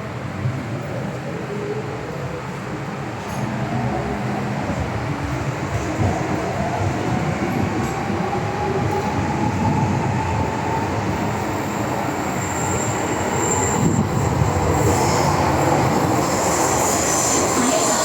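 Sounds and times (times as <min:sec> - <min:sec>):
high wheel squeal: 0:11.6 - 0:18.0.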